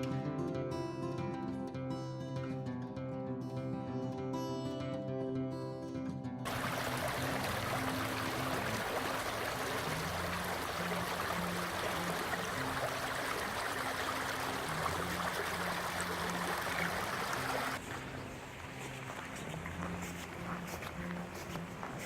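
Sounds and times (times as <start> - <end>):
stream water rushing: 6.5 - 19.6.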